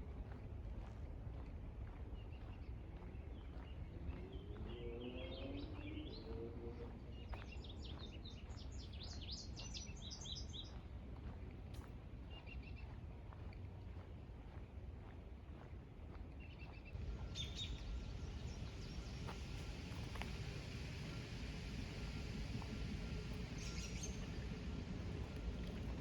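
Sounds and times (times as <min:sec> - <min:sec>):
songbirds singing: 0:16.4 - 0:19.8, 0:23.2 - 0:26.0.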